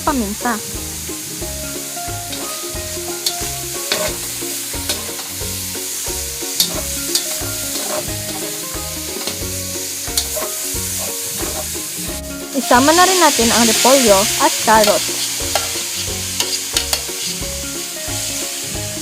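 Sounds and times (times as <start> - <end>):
chicken sizzling in a pan: 0.0 - 19.0
utensil clicking against pan: 6.6 - 9.5, 10.1 - 11.8, 14.9 - 17.4.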